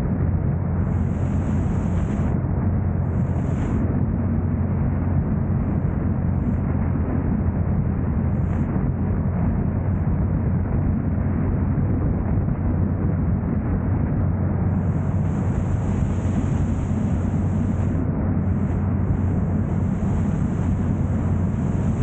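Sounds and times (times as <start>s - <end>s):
thin high hiss: 0.9s - 2.3s, 14.8s - 22.0s
car driving rumble: 14.6s - 22.0s.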